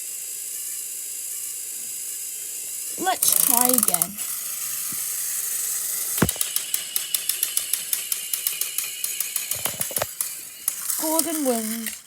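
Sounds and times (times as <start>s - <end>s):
toy train whirring: 0.0s - 12.0s
thump: 6.2s - 6.4s.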